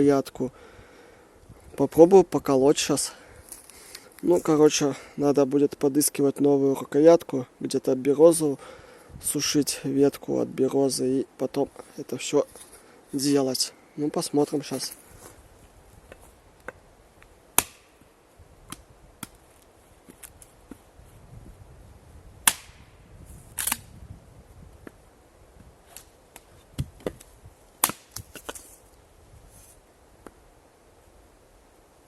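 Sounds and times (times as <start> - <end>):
axe chopping wood: 17.6 - 18.0, 22.4 - 22.8, 27.8 - 28.6.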